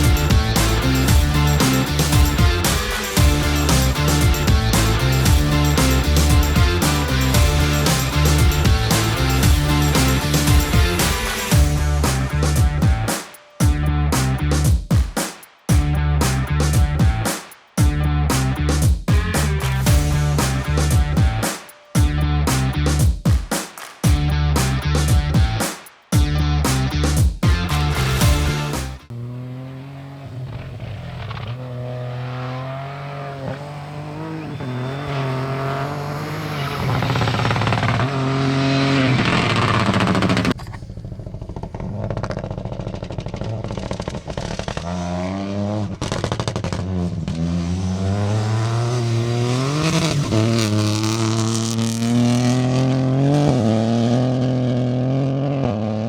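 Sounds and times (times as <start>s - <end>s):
rally car engine accelerating: 0.0s - 13.1s, 26.4s - 56.0s.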